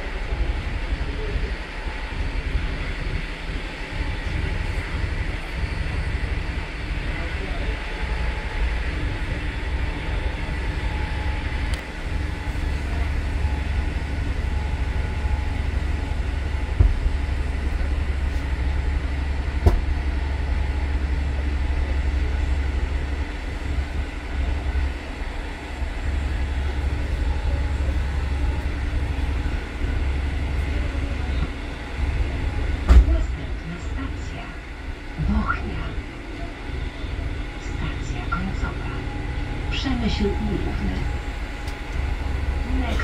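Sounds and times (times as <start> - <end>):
passenger train rumbling: 0.0 - 43.0.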